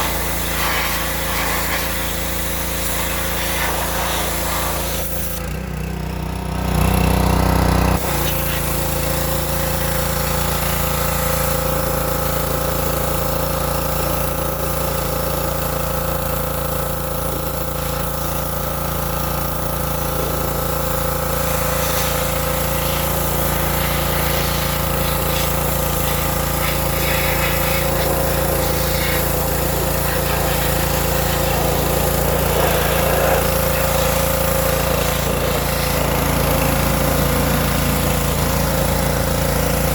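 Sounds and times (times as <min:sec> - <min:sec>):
pressure washer spraying: 0:00.0 - 0:05.5, 0:08.0 - 0:11.6, 0:17.4 - 0:39.9.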